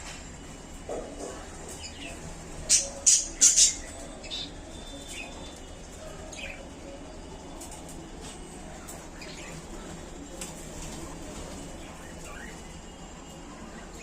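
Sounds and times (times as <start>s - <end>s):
budgerigars chirping: 2.7s - 4.5s.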